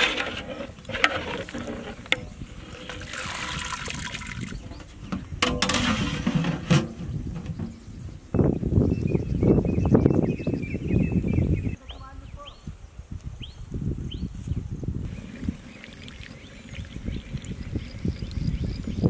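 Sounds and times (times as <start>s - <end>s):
ladle stirring in pot of water: 0.0s - 6.2s, 15.1s - 18.4s
water splashing and draining: 2.7s - 4.6s, 15.1s - 18.5s.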